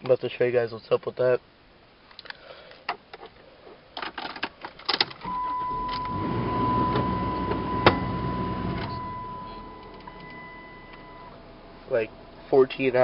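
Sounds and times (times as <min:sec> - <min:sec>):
car engine starting: 0:05.2 - 0:13.0
high warning chime tone: 0:05.3 - 0:11.6.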